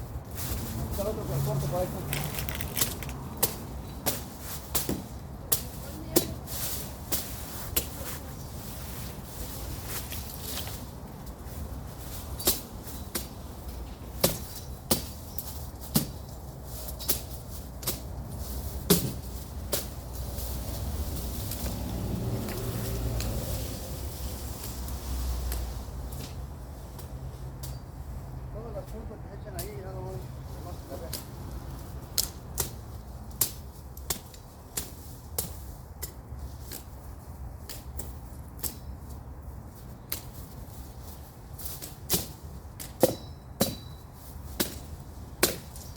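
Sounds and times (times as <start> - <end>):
machete chopping brush: 1.7 - 6.4, 14.2 - 15.2, 18.8 - 20.0, 32.2 - 36.9, 41.6 - 45.9.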